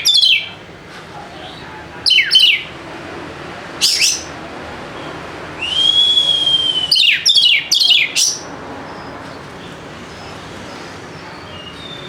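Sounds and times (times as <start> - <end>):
bird singing: 0.0 - 0.6, 1.4 - 2.7, 3.8 - 4.4, 5.0 - 12.0.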